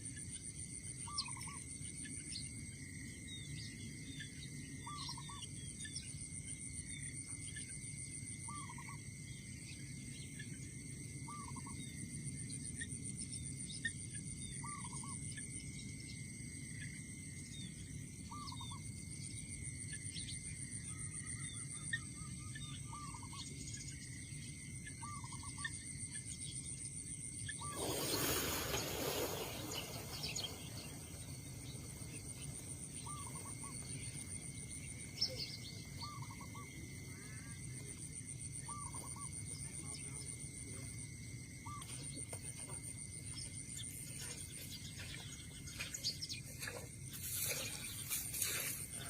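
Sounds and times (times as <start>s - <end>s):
crickets droning: 0.0s - 49.0s
small bird chirps: 27.4s - 37.5s, 41.6s - 49.0s.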